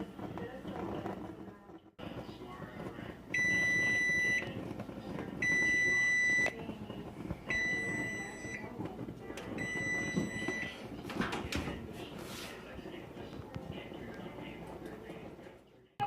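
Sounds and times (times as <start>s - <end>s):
electronic alarm beeping: 3.4s - 4.4s, 5.4s - 6.6s, 7.5s - 8.6s, 9.6s - 10.8s.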